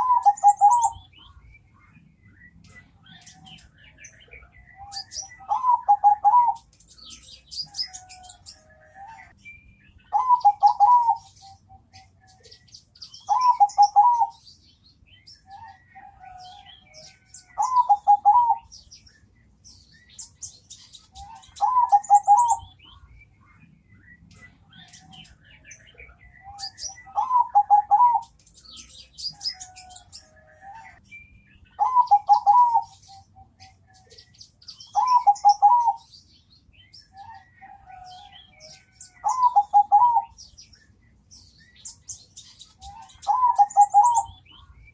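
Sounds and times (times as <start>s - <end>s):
dove cooing: 0.0s - 1.0s, 4.7s - 9.3s, 10.1s - 12.3s, 13.3s - 14.4s, 15.5s - 18.7s, 21.2s - 22.7s, 26.0s - 28.4s, 31.8s - 34.2s, 34.9s - 36.1s, 37.1s - 40.4s, 42.7s - 44.4s
faint high-pitched chirping: 0.0s - 44.9s.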